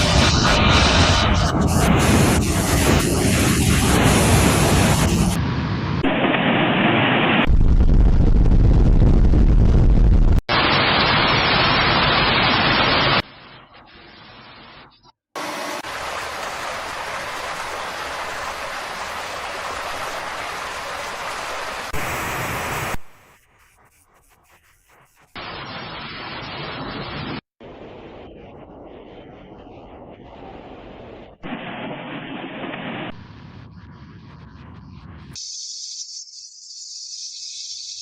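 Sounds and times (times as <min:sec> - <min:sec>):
floodwater rushing: 0:15.4 - 0:23.0.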